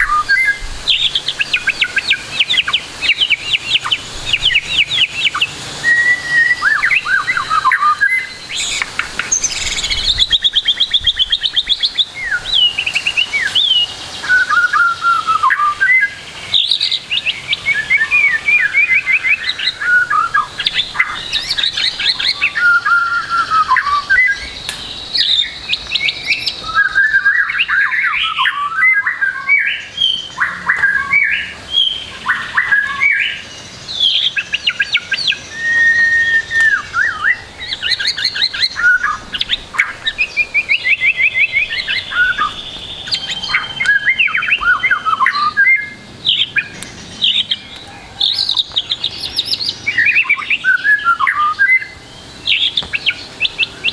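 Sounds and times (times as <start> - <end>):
bird singing trills and whistles: 0.0 - 53.9.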